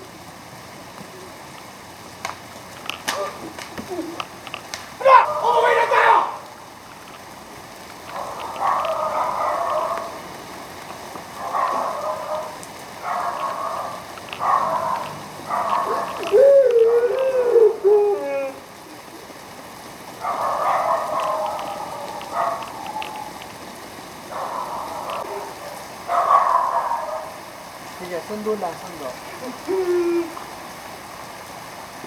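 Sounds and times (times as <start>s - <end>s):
rain falling: 0.0s - 32.0s
loud wavering cry: 5.0s - 6.5s, 15.8s - 19.2s.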